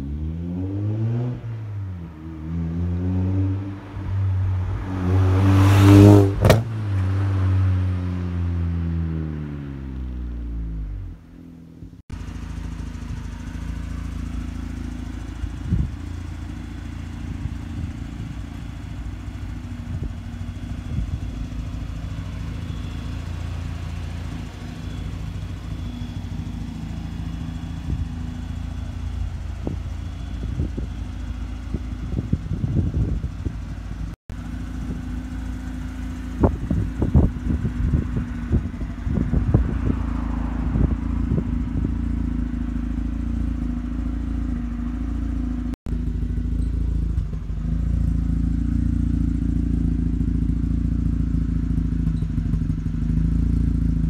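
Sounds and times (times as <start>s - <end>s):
rotary engine idling: 12.1s - 39.7s.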